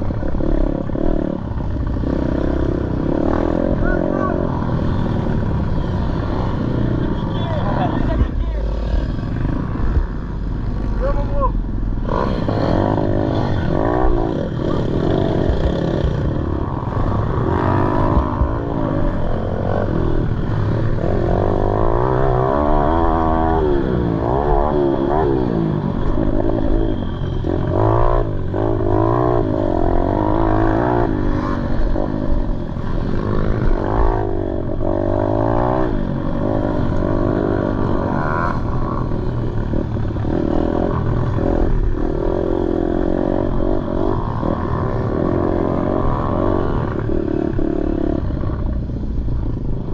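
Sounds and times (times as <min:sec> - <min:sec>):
pit bike engine revving: 0:12.0 - 0:48.7.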